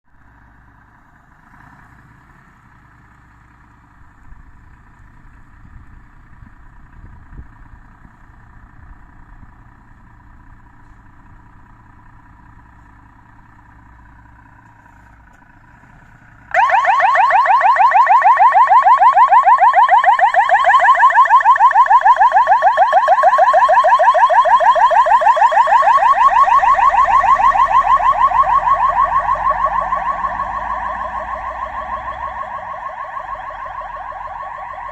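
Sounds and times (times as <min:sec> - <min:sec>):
fire engine rumble: 0:00.1 - 0:34.9
warbling electronic siren: 0:16.5 - 0:34.9.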